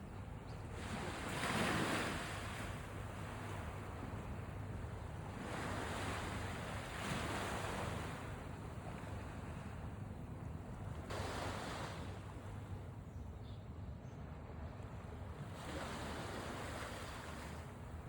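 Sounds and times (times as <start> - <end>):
sea waves breaking on beach: 0.7 - 9.9, 11.0 - 12.7, 15.4 - 18.0.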